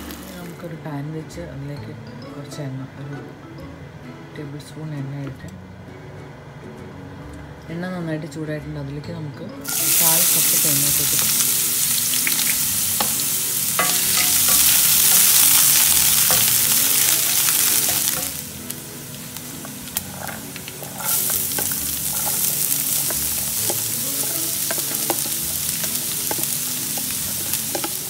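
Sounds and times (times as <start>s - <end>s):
onion frying in a pan: 0.0s - 0.6s, 9.6s - 28.0s
food sizzling in hot oil: 9.6s - 28.0s.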